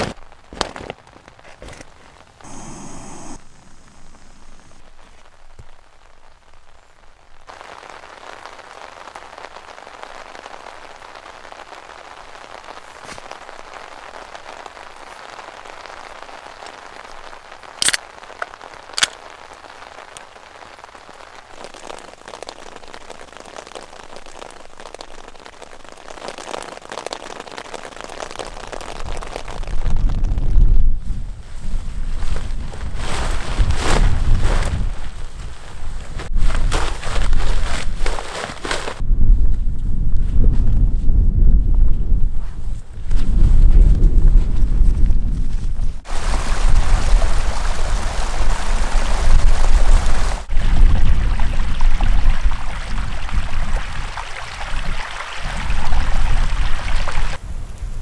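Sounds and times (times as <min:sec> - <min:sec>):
heavy rain on a tent: 0:04.4 - 0:39.0, 0:45.6 - 0:58.0
sharp clicks: 0:17.8 - 0:18.0.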